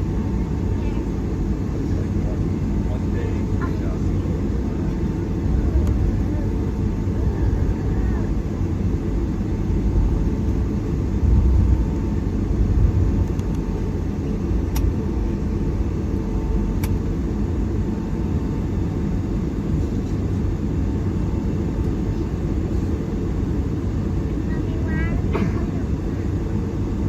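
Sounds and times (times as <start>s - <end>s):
aircraft cabin rumble: 0.0s - 27.0s.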